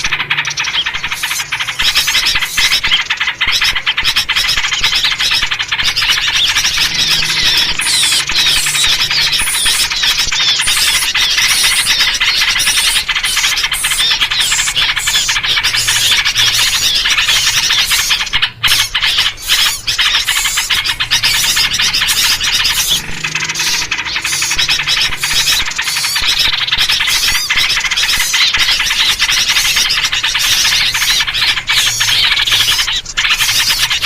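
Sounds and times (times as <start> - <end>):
bulbul calls: 0.0 - 34.0
small birds chattering: 0.0 - 34.0.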